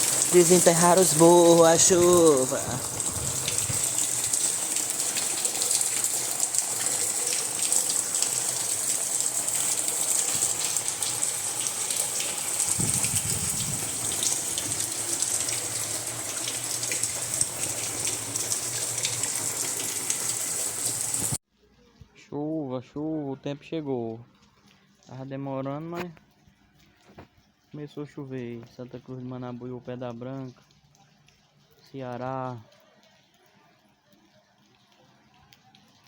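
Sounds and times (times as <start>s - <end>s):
water rushing with patters: 0.0s - 21.4s.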